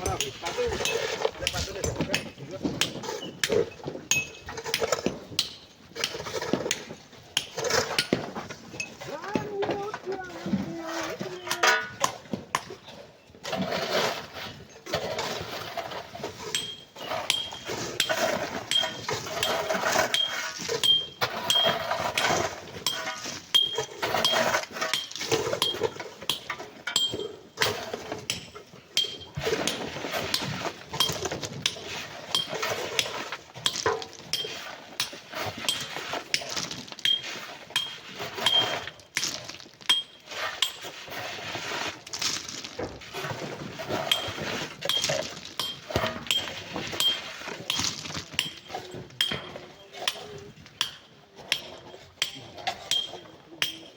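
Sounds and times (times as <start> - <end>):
hand tools digging sand and rock: 0.0 - 53.9.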